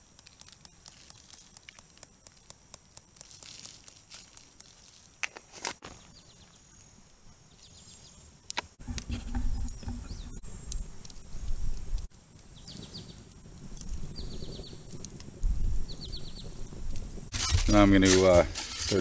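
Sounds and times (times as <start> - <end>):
birds chirping rapidly: 9.4 - 10.4, 14.1 - 14.9, 15.8 - 16.7.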